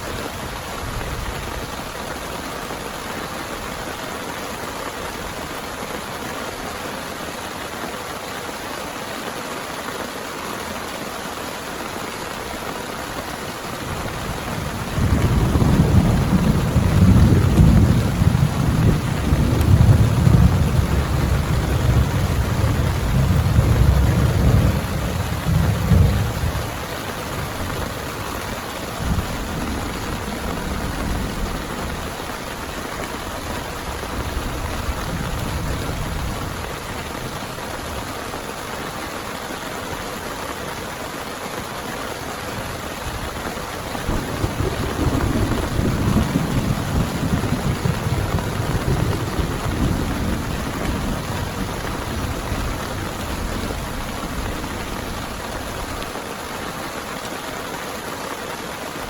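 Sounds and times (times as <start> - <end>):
heavy rain falling: 0.0 - 59.0
thunder rumbling: 13.7 - 38.0, 43.1 - 56.2.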